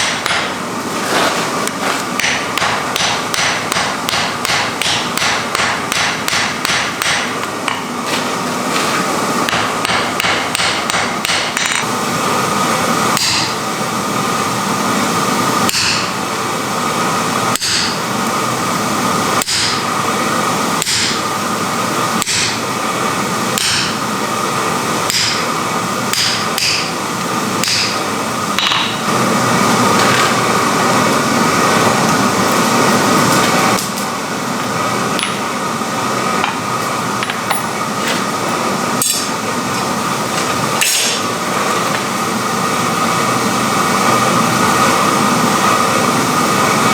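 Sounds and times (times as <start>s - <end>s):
hammer striking iron: 0.0s - 0.6s, 2.2s - 7.9s, 9.5s - 11.8s, 13.2s - 13.6s, 15.7s - 16.1s, 22.2s - 22.6s, 23.6s - 24.0s, 25.1s - 25.5s, 26.1s - 26.9s, 27.6s - 28.0s, 28.6s - 29.1s.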